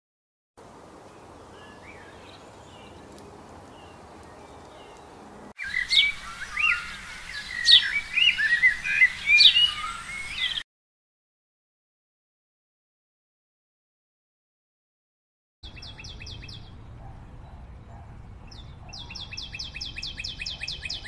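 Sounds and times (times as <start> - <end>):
bird chirps: 1.5 - 10.6, 15.6 - 21.0
rapid whistled bird calls: 5.6 - 10.6, 18.5 - 21.0.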